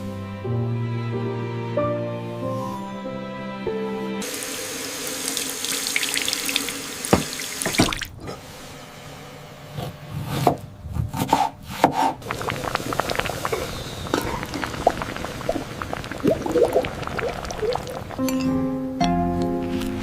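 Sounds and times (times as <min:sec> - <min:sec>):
running water pouring: 0:04.2 - 0:08.2, 0:12.2 - 0:18.4
water splashing: 0:05.2 - 0:08.2, 0:12.2 - 0:18.4.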